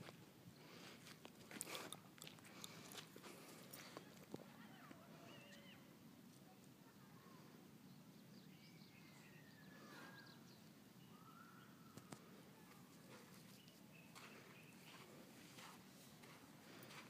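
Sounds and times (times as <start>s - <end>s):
faint bird calls: 3.8s - 5.9s, 8.4s - 15.1s.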